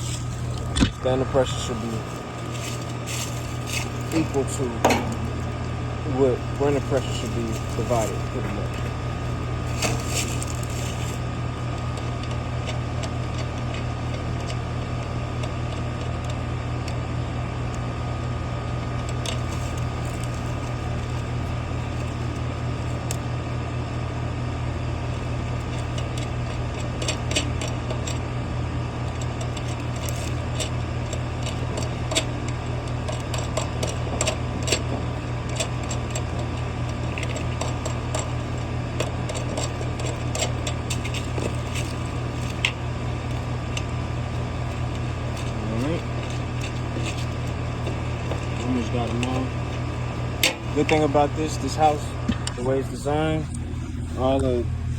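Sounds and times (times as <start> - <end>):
air conditioner humming: 0.0 - 54.9.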